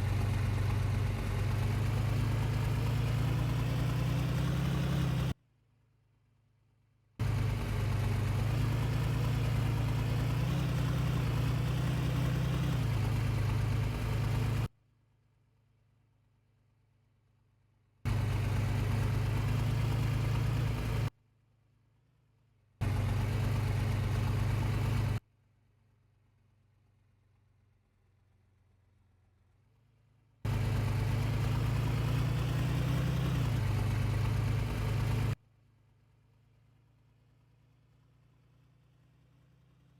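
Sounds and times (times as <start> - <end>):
vehicle engine running: 0.0 - 5.4, 7.2 - 14.7, 18.1 - 21.1, 22.8 - 25.2, 30.5 - 35.4.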